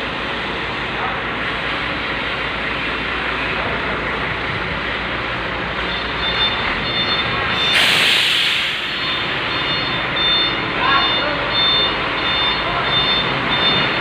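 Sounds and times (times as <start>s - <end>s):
heavy vehicle engine running: 0.0s - 14.0s
burst of hissing air: 7.6s - 8.9s.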